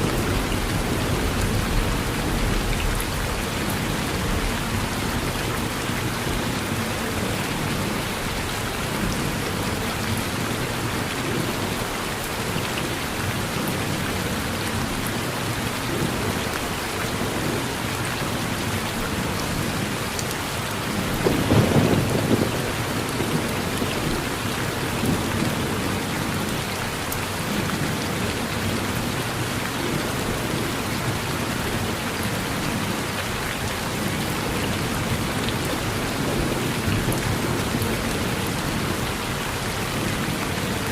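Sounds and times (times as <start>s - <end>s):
rain falling on a porch: 0.0s - 40.9s
thunder rumbling: 21.0s - 23.6s.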